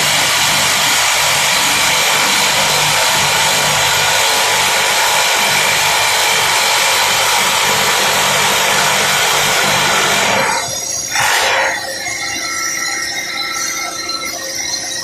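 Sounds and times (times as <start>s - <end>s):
rock drill hammering: 0.0s - 11.9s.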